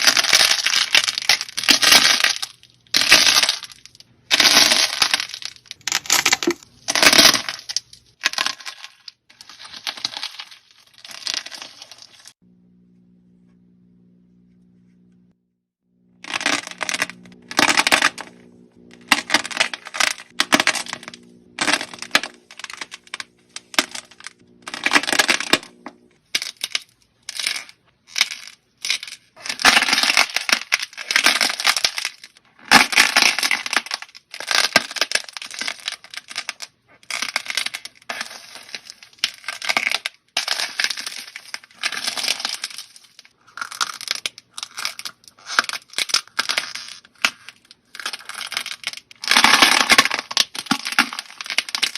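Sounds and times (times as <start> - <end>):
slime crackling and popping: 0.0 - 12.4, 16.2 - 51.9
low steady hum: 12.4 - 32.0.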